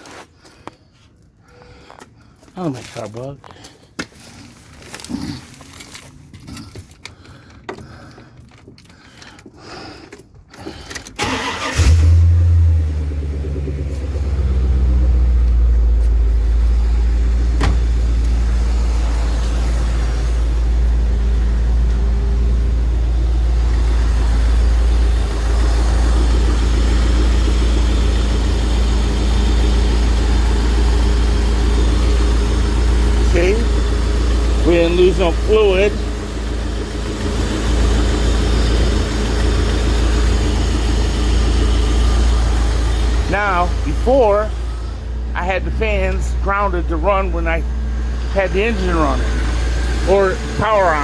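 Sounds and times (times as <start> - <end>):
car engine starting and idling: 1.5 - 51.0.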